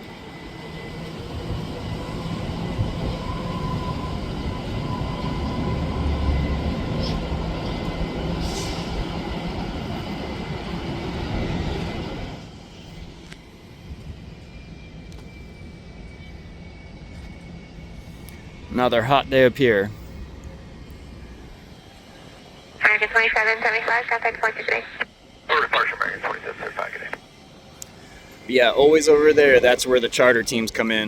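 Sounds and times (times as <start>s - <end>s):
jet engines roaring: 22.8s - 27.2s.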